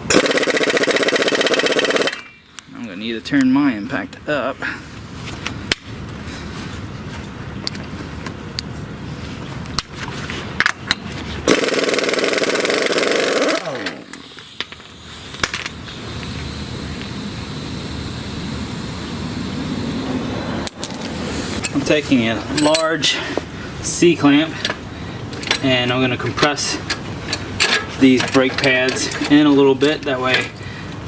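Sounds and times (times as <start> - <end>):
impact wrench hammering: 10.6 - 15.8.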